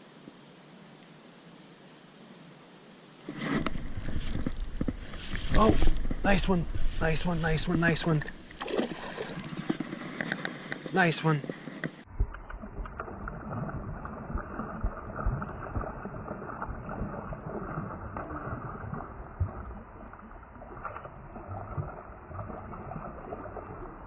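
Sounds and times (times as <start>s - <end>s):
water sloshing against kayak hull: 3.3s - 24.0s.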